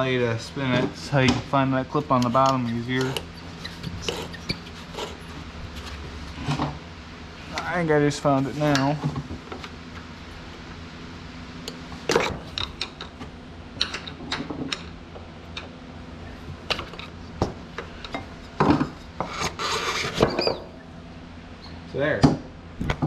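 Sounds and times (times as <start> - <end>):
steady low hum: 0.0 - 23.0
tool scraping and clicking: 2.1 - 6.0, 19.2 - 20.4.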